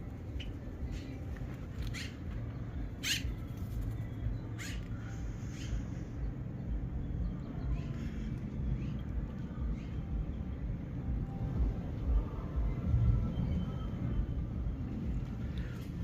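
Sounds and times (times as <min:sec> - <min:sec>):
low steady rumble: 0:00.0 - 0:16.0
bird calling: 0:00.2 - 0:06.4.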